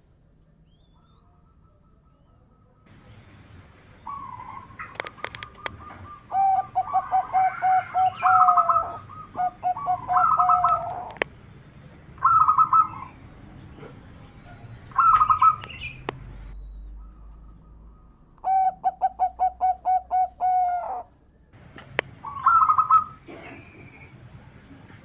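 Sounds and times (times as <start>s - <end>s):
dove cooing: 1.0s - 11.3s, 12.2s - 16.2s, 17.0s - 24.2s
sharp clicks: 4.8s - 5.9s, 10.7s - 11.4s, 15.2s - 16.3s, 21.6s - 22.2s.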